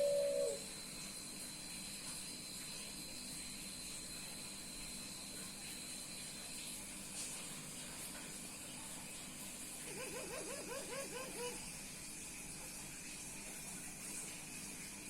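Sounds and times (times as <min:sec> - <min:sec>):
dove calling: 0:00.0 - 0:00.7, 0:09.8 - 0:11.7.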